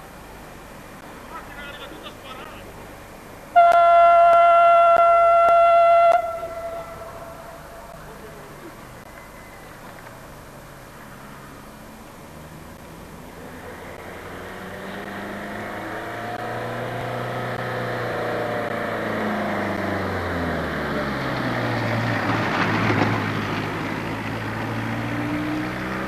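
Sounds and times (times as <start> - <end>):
diesel locomotive engine: 0.0 - 25.9
wheel-on-rail noise: 17.1 - 26.0.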